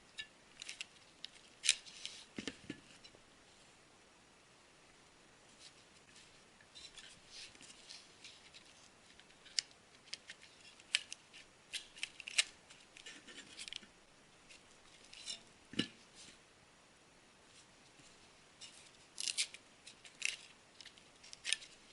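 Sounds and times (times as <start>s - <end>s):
plastic parts clicking and rubbing: 0.1s - 3.2s, 6.1s - 13.9s, 18.6s - 21.9s.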